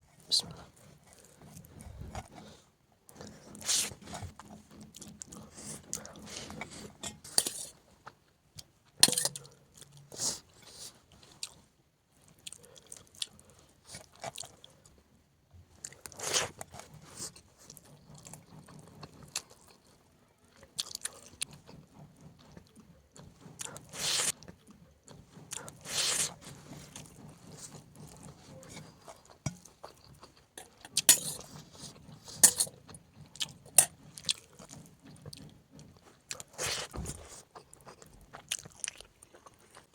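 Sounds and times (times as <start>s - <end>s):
quiet chewing: 0.0s - 39.9s.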